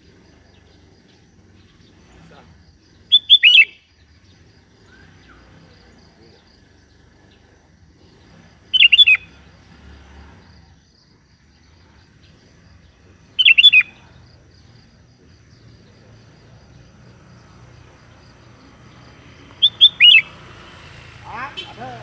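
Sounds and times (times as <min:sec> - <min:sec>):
bulbul calling: 0:00.4 - 0:07.5, 0:08.1 - 0:09.5, 0:12.8 - 0:14.8, 0:18.0 - 0:20.5.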